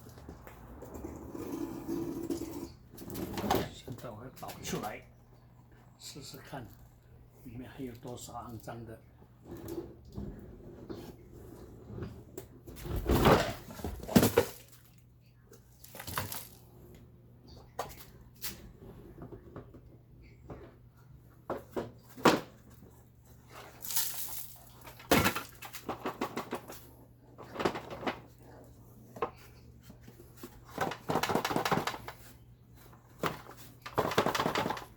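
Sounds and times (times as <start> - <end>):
faint low hum: 0.0 - 30.9
knocks of plastic parts: 30.7 - 32.3, 33.2 - 34.9.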